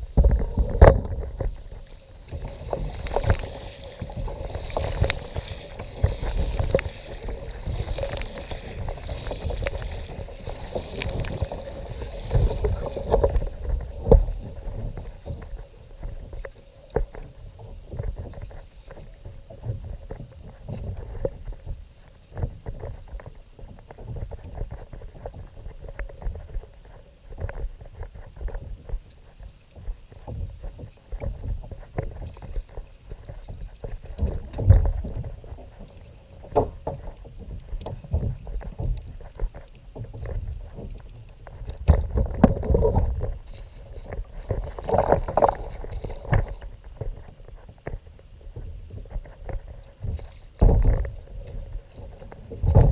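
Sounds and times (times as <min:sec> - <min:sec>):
thumps and knocks on kayak: 0:00.0 - 0:01.7, 0:36.5 - 0:48.0, 0:48.6 - 0:52.9
water sloshing against hull: 0:00.0 - 0:52.9.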